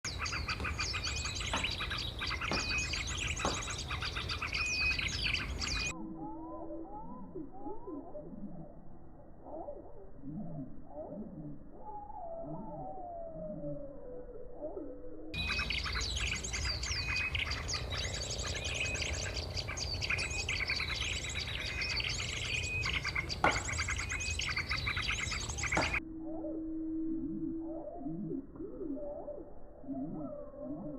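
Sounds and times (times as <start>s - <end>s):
songbirds chirping and trilling: 0.0s - 26.0s
muffled lower rising bird calls: 0.0s - 30.9s
steady low rumble: 15.4s - 27.8s
single knock: 23.4s - 23.7s.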